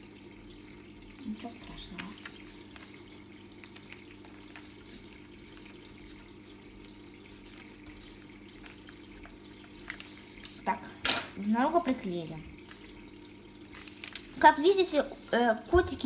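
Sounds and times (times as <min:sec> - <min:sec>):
paper rustling: 0:01.8 - 0:10.7, 0:13.7 - 0:15.3.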